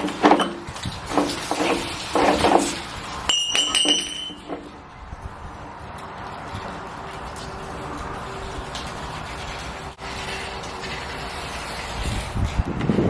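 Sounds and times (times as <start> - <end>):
metal scraping and rattling: 0.0 - 5.2, 5.8 - 13.0
sharp metallic clinks: 3.3 - 4.5.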